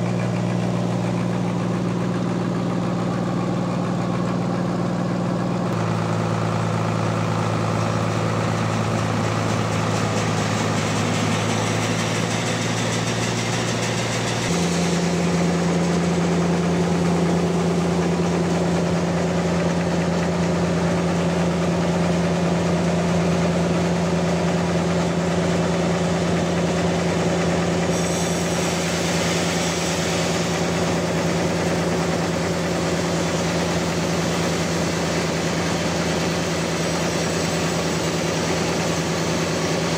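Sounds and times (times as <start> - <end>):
sawmill machine sawing log: 0.0 - 39.9.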